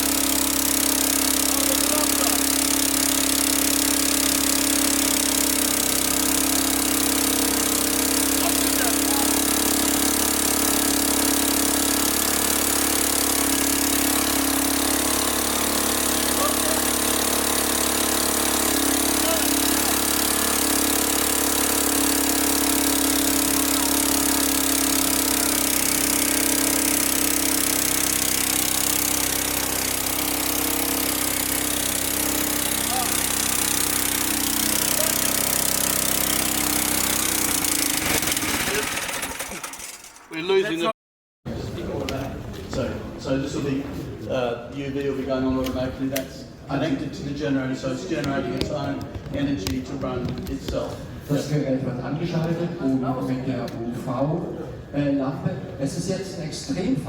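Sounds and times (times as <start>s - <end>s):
generator droning: 0.0s - 40.9s.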